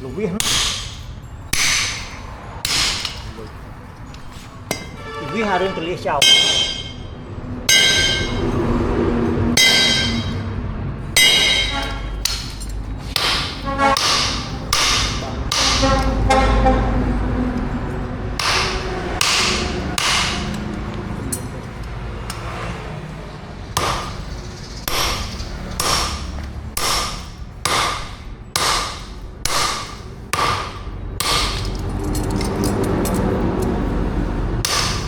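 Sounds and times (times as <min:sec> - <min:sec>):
hammer striking steel on anvil: 0:00.4 - 0:03.5, 0:04.7 - 0:05.2, 0:06.2 - 0:08.7, 0:09.6 - 0:10.4, 0:11.2 - 0:16.7, 0:18.4 - 0:21.6, 0:22.3 - 0:22.7, 0:23.8 - 0:33.2, 0:34.6 - 0:35.0.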